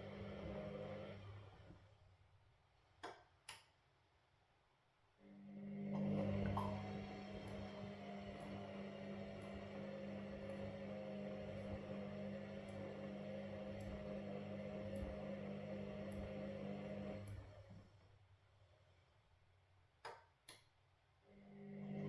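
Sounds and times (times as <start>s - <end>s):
washing machine motor humming: 0.0s - 2.0s, 5.6s - 18.1s, 21.4s - 22.0s.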